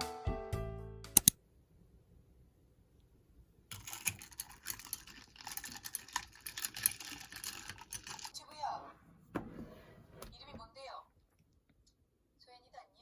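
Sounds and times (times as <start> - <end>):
keyboard key clicks: 1.2 - 1.4.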